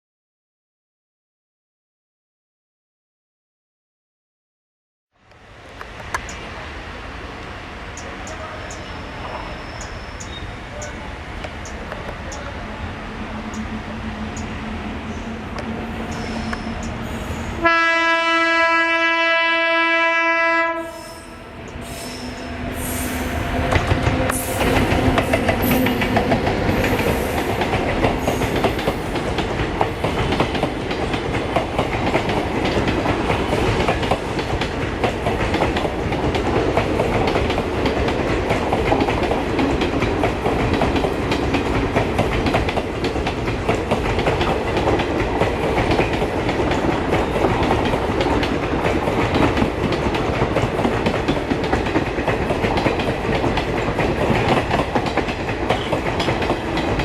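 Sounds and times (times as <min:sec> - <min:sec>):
train wheels clattering over joints: 0:21.8 - 0:57.0.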